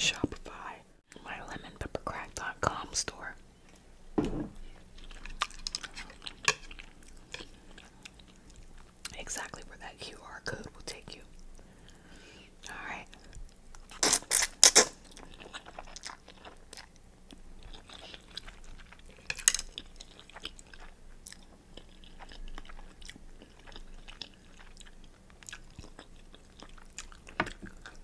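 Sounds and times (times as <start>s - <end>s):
person chewing and biting food: 4.6s - 9.1s, 13.2s - 28.0s.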